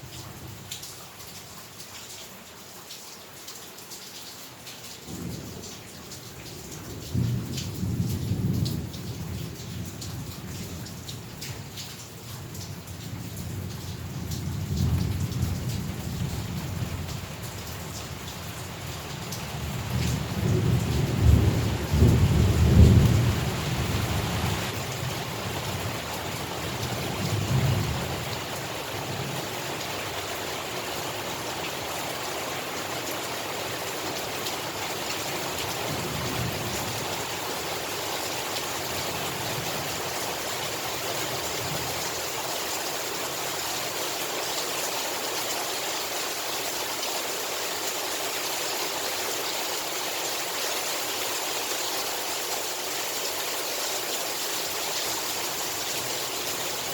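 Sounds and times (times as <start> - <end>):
heavy rain: 0.0 - 56.9
rolling thunder: 19.5 - 25.0.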